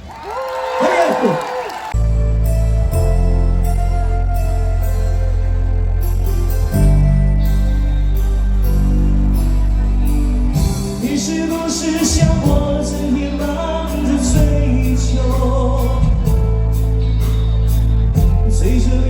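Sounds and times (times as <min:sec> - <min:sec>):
bass notes: 0:02.0 - 0:19.0
person singing melody: 0:03.0 - 0:17.3
drum and cymbal beat: 0:10.6 - 0:13.0.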